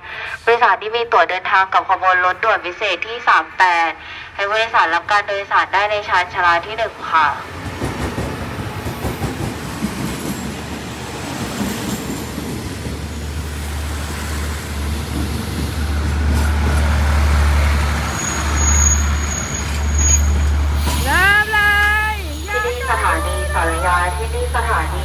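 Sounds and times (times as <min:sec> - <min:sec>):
train rumbling: 0:05.8 - 0:25.0.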